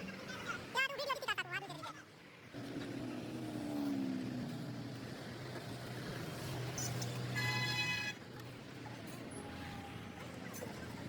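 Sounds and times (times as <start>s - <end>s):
steady low traffic hum: 0.0s - 11.0s
car horn: 7.4s - 8.2s.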